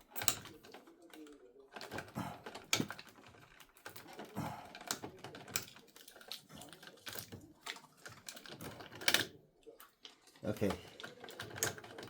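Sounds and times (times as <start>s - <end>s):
small plastic clicks and rattling: 0.0s - 9.4s, 10.0s - 12.0s.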